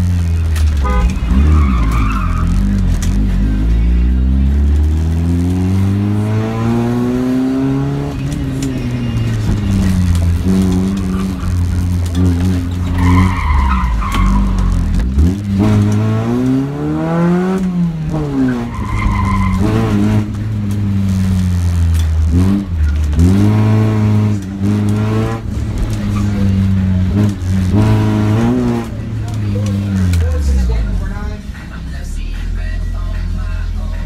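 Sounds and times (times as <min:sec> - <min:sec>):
car engine revving: 0:00.0 - 0:34.0
tyre squeals: 0:01.0 - 0:02.8, 0:12.5 - 0:15.0, 0:18.3 - 0:20.0.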